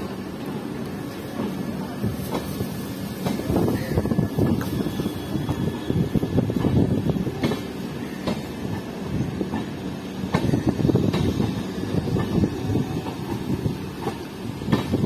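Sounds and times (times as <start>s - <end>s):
train wheels rumbling on rails: 0.0s - 15.0s
wheels clacking over rail joints: 5.4s - 15.0s.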